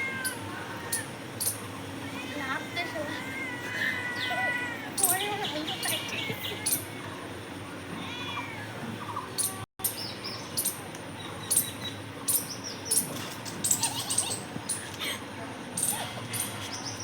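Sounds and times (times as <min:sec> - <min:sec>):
outdoor background noise: 0:00.0 - 0:17.0
birds chirping: 0:04.0 - 0:15.1, 0:15.8 - 0:17.0.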